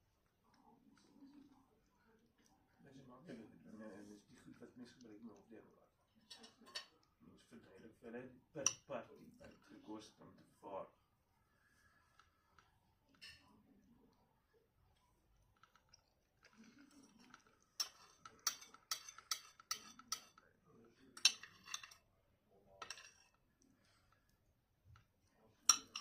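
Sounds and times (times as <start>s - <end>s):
tableware clinking: 16.8s - 20.4s, 21.2s - 22.0s, 22.8s - 23.4s, 25.6s - 26.0s.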